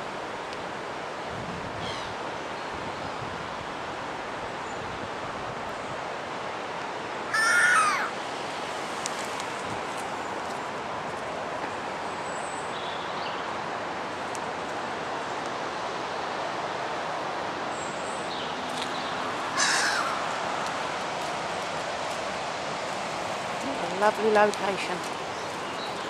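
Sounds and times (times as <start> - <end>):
bird harsh call: 7.3 - 8.2, 19.6 - 20.2.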